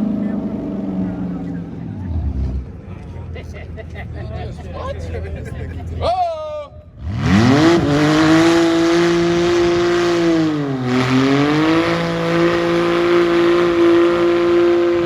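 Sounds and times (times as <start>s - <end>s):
car engine revving: 0.0s - 3.4s, 6.9s - 15.0s.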